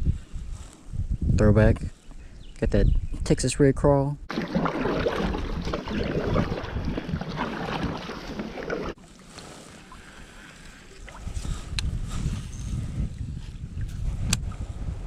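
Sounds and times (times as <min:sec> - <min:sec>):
wind noise on microphone: 0:00.0 - 0:03.9, 0:04.8 - 0:09.0, 0:10.8 - 0:15.0
water lapping at kayak: 0:04.3 - 0:14.9.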